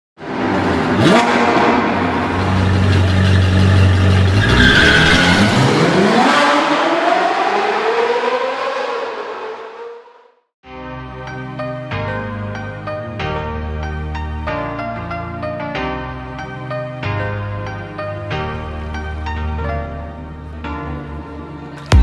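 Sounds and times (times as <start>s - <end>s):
car engine revving: 0.2s - 10.4s.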